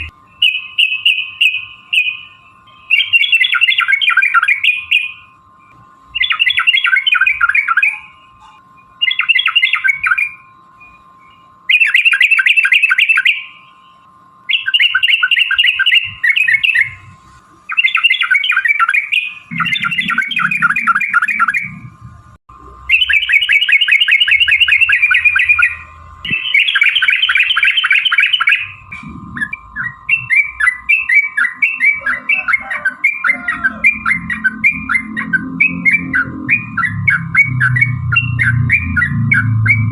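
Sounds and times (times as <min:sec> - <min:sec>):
bird rolling chatter: 0:17.7 - 0:21.9.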